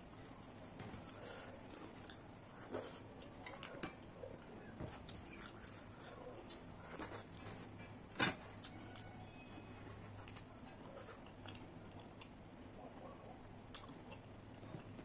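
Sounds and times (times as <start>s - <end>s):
mouth smacking and chewing: 10.2s - 15.0s.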